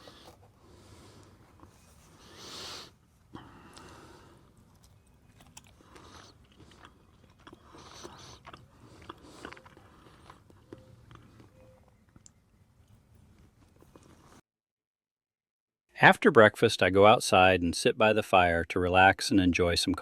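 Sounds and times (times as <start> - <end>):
person chewing food: 0.0 - 14.4.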